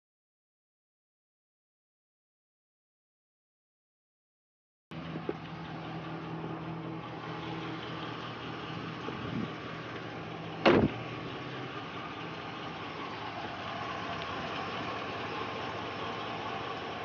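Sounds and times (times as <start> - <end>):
pickup truck engine idling: 4.9 - 17.0
loud thump: 10.6 - 11.1.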